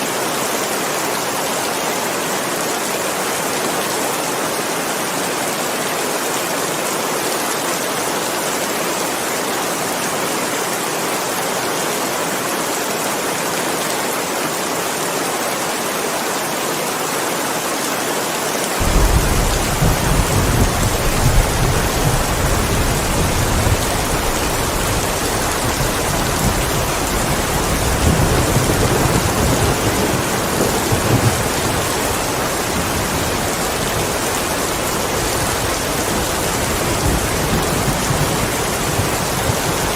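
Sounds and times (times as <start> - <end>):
heavy rain hissing: 18.7 - 39.9
rolling thunder rumble: 18.8 - 34.1.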